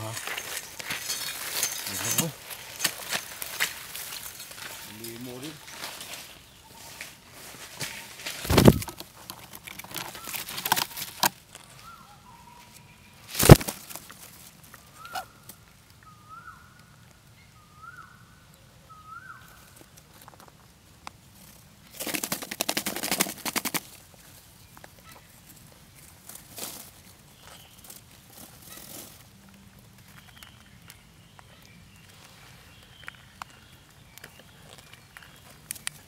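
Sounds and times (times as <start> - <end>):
bird knocks and rustling: 7.8 - 11.3
rapid wing flapping: 8.4 - 9.0, 13.4 - 13.9, 21.9 - 24.0.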